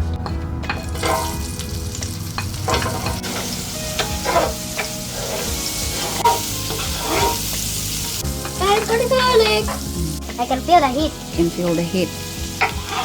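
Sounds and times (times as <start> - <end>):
utensil scraping pan: 0.7 - 9.9, 12.6 - 13.0
food sizzling in hot oil: 0.7 - 13.0.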